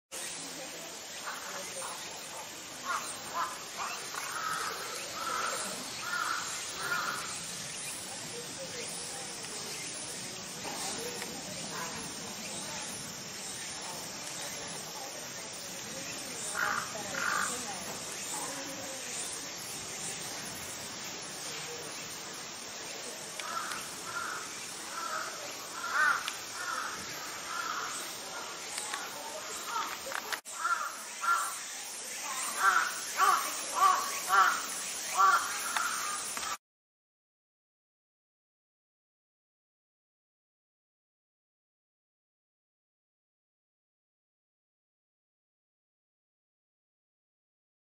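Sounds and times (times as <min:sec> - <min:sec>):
bird calls: 0:00.2 - 0:36.6.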